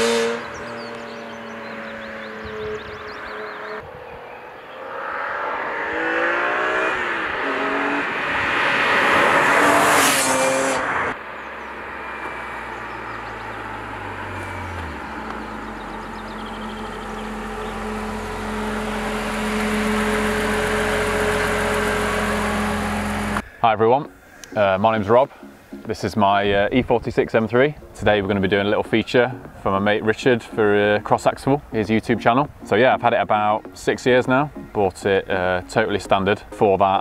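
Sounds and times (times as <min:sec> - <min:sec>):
car engine accelerating hard: 0:00.0 - 0:23.4
car engine idling: 0:11.2 - 0:23.6.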